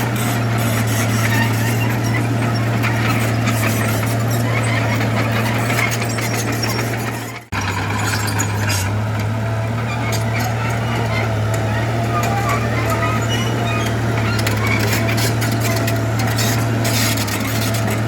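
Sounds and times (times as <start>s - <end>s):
diesel engine drone: 0.0s - 18.0s.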